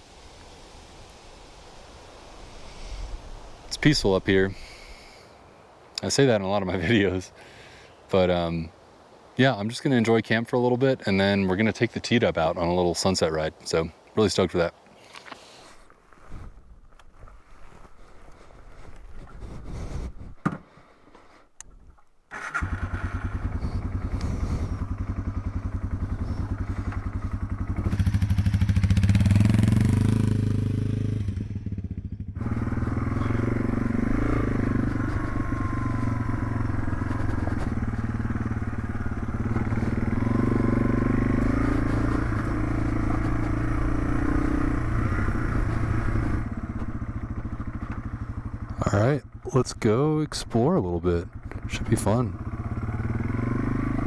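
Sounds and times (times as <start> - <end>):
motorcycle engine running: 22.4 - 50.6, 51.2 - 54.0.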